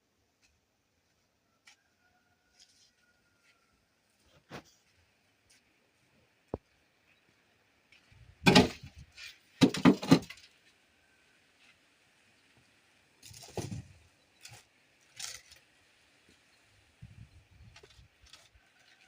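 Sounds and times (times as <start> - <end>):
bricks knocking together: 9.6 - 10.3.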